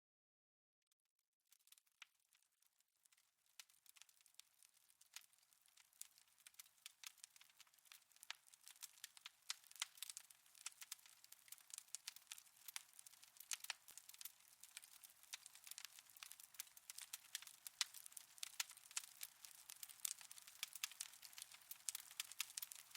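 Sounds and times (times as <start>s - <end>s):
wood fire crackling: 1.6s - 22.9s.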